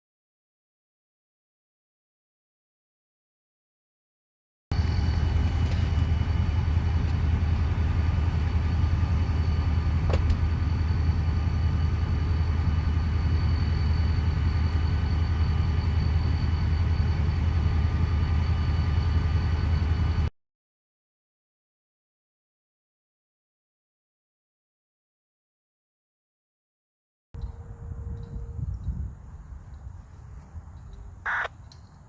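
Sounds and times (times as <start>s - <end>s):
train rumbling by: 4.7s - 20.3s, 27.4s - 31.3s.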